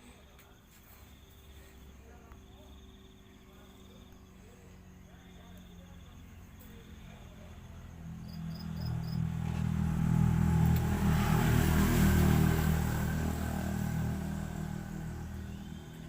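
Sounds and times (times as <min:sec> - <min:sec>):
vehicle engine passing by: 0:00.8 - 0:16.0.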